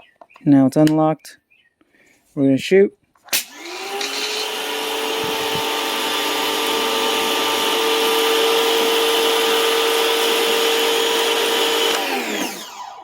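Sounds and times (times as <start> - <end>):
pressure washer motor hum: 3.3 - 13.0.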